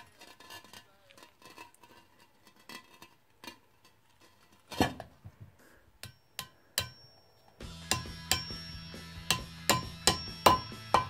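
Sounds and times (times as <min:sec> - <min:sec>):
sharp metal clank: 0:07.8 - 0:11.0.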